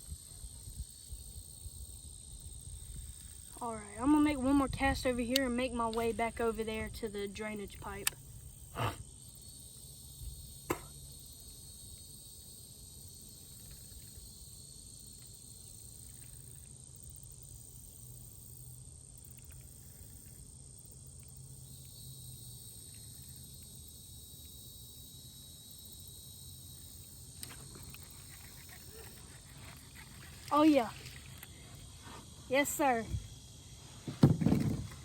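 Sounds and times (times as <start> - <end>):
insects droning: 0.0 - 35.0.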